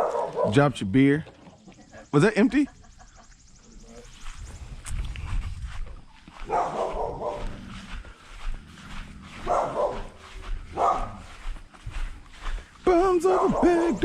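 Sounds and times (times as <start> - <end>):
dog barking: 0.0 - 0.6, 6.4 - 7.7, 9.3 - 11.4, 13.2 - 14.0.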